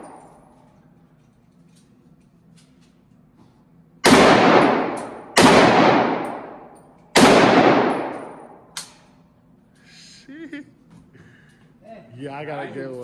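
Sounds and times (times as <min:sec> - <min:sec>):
echoing gunshots: 0:04.0 - 0:08.7.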